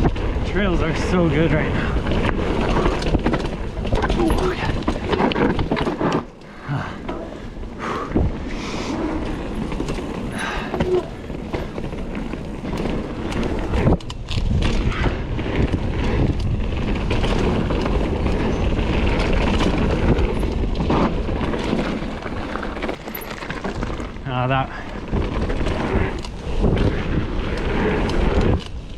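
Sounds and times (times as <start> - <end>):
bike knocks and rattles: 0.0 - 7.4, 8.0 - 28.9
bike tyres on dirt: 0.0 - 28.9
wind on microphone: 7.9 - 28.9.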